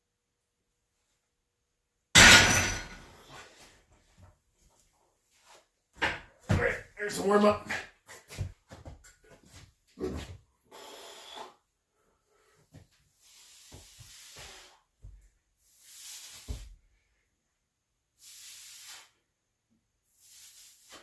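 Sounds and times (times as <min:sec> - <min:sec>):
man breathing hard: 0:10.6 - 0:12.8.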